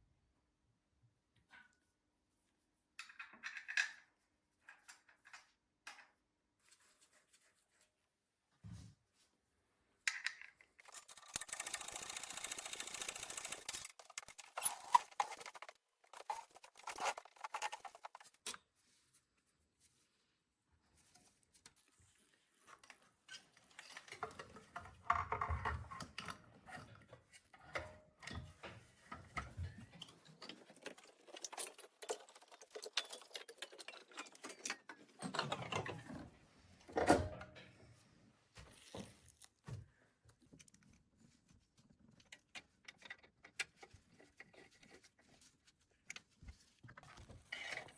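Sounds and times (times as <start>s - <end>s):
tools clicking and clinking: 10.1s - 18.6s, 30.0s - 36.0s.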